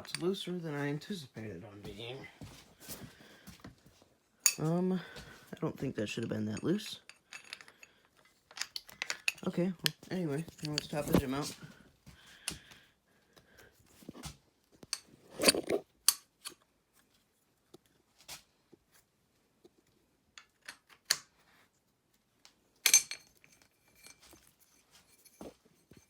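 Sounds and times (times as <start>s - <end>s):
tools clanking against metal: 0.0s - 0.4s, 4.4s - 4.7s, 6.6s - 11.6s, 14.9s - 16.6s, 22.8s - 26.0s.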